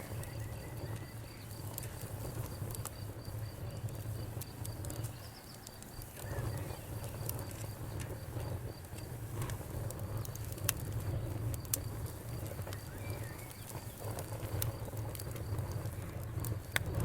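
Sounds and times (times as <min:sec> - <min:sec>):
steady low rumble: 0:00.0 - 0:17.0
wood fire crackling: 0:00.0 - 0:17.0
faint high-pitched chirp: 0:12.7 - 0:13.9.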